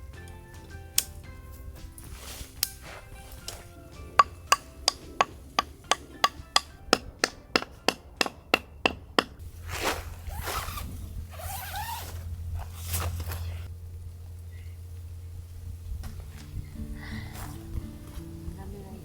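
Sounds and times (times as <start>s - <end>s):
rustling and scraping: 1.0s - 6.7s, 9.3s - 18.8s
knife chopping on wooden board: 4.2s - 9.4s.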